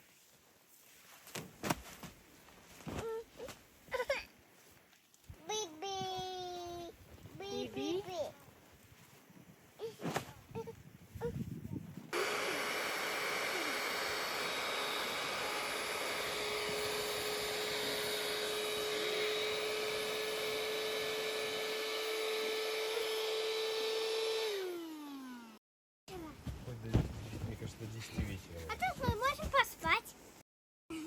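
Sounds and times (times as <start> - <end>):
electric motor whining: 12.2 - 25.6.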